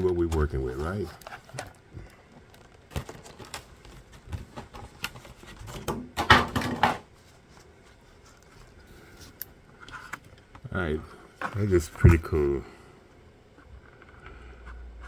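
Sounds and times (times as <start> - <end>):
packaging crinkling and rustling: 0.0 - 5.9
packaging opened by hand: 0.0 - 5.9.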